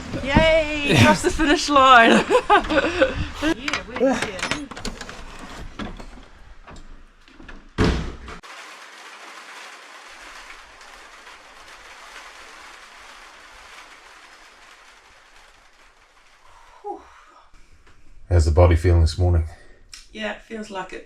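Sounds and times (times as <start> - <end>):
loud thump: 7.8 - 8.4
steady hiss: 8.4 - 19.0.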